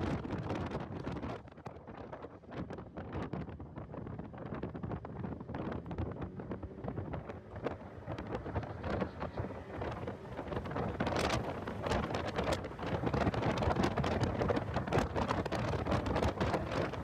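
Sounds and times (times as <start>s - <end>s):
wind buffeting microphone: 0.0s - 17.0s
vehicle noise: 4.7s - 17.0s.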